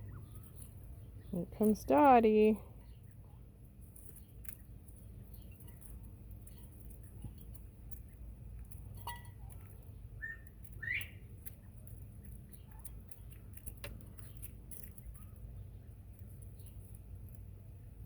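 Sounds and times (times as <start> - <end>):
birds moving with light scratches: 0.0 - 18.0
quail chirps: 10.2 - 11.2.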